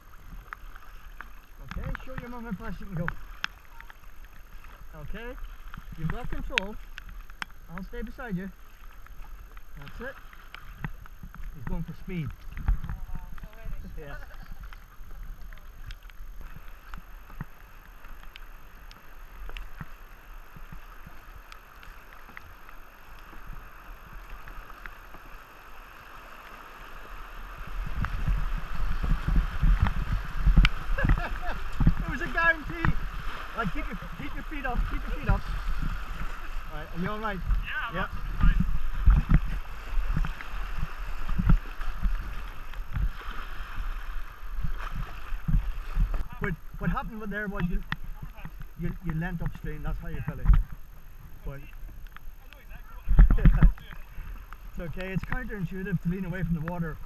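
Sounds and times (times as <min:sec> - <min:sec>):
paddles splashing in water: 0:00.0 - 0:57.0
river current rushing: 0:00.0 - 0:57.0
wind buffeting microphone: 0:27.4 - 0:47.0.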